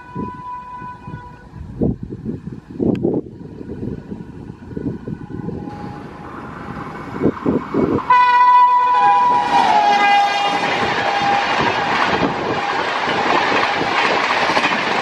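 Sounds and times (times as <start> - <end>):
train horn blast: 0.0 - 1.7, 4.8 - 6.4, 8.1 - 13.0
train rushing at speed: 0.0 - 15.0.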